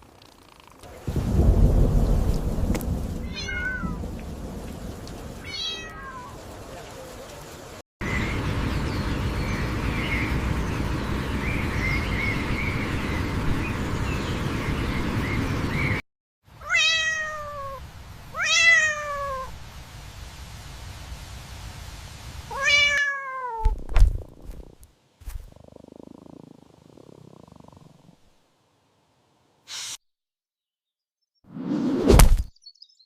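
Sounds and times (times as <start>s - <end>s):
steady rushing noise: 0.9s - 5.5s
cat meowing: 3.2s - 4.0s, 5.4s - 6.4s, 16.6s - 17.8s, 18.4s - 19.5s, 22.5s - 23.7s.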